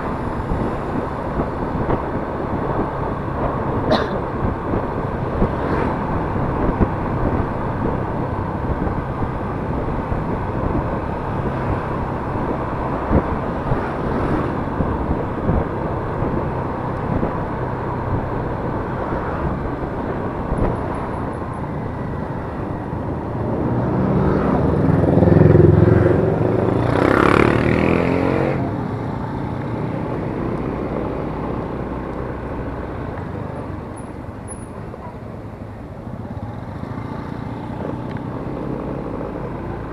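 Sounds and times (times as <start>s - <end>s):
louder engine sound: 0.0s - 31.9s
road and wind noise: 0.0s - 39.9s
scooter engine running: 0.0s - 39.9s.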